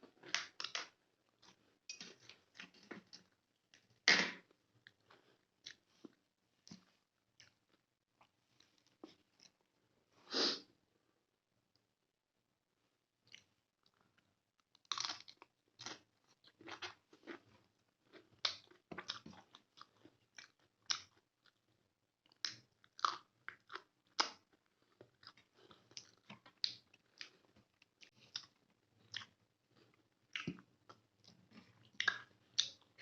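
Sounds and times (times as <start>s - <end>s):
chewing mouth clicks and smacks: 18.1s - 21.6s, 22.2s - 33.0s.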